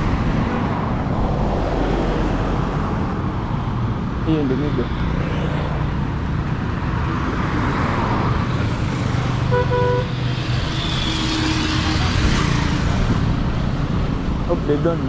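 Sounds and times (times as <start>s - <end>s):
road traffic passing: 0.0s - 15.0s
car horn toot: 9.5s - 10.2s.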